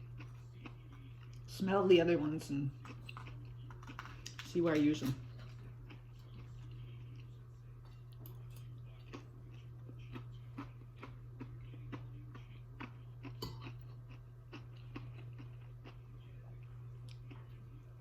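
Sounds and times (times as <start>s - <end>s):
steady low hum: 0.0s - 18.0s
person chewing with mouth clicks: 8.6s - 16.0s, 17.0s - 17.5s.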